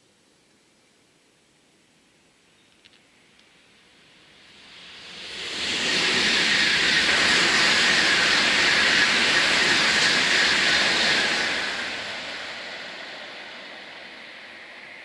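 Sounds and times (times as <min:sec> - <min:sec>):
high-speed train rushing past: 0:03.6 - 0:15.0.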